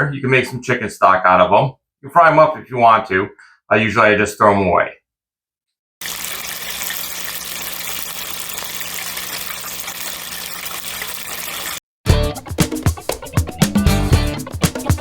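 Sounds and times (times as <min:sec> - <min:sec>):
oil hissing in deep fryer: 0:06.0 - 0:11.8.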